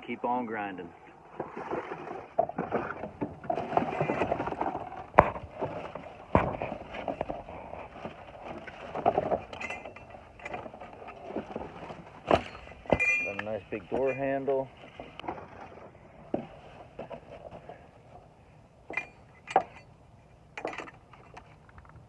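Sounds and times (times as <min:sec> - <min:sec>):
metal clanks: 0:03.1 - 0:15.8, 0:18.9 - 0:22.0
hands rummaging through metal debris: 0:03.1 - 0:17.8, 0:18.9 - 0:19.9.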